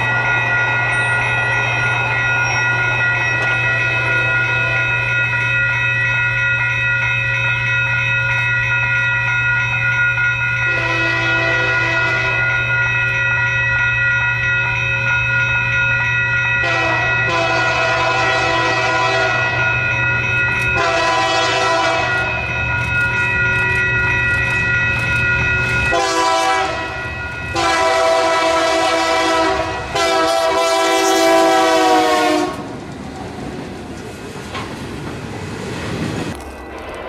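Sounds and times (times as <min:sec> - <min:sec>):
locomotive air horn blasts: 0:10.7 - 0:12.5, 0:16.6 - 0:19.6, 0:20.8 - 0:22.2, 0:25.9 - 0:32.7
train wheels clattering on rails: 0:18.5 - 0:37.0.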